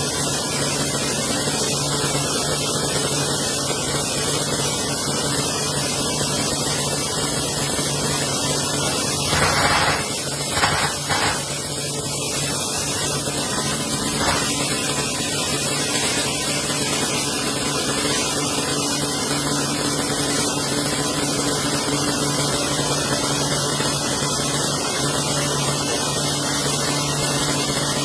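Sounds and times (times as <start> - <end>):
steady hissing: 9.1 - 16.8.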